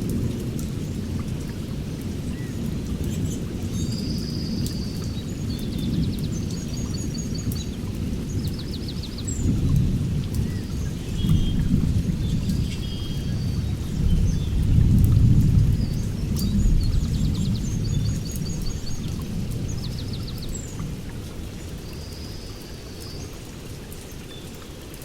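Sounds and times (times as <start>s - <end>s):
songbirds chirping: 0.5s - 25.0s.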